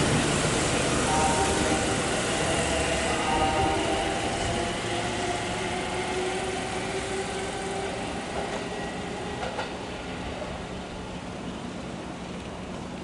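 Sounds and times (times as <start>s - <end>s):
electric train humming: 0.0s - 13.0s
train wheel clicks: 9.3s - 9.8s.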